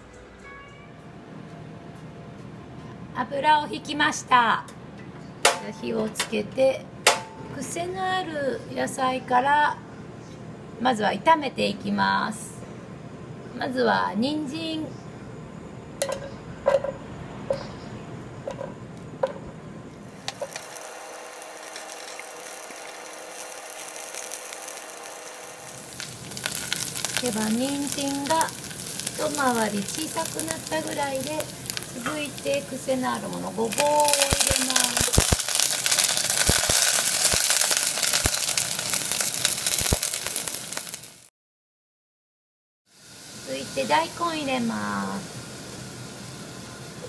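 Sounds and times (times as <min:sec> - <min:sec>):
carrots sizzling in oil: 0:20.1 - 0:41.3, 0:42.9 - 0:47.0
spatula stirring: 0:20.3 - 0:20.8
carrots knocking in a pot: 0:26.0 - 0:41.0.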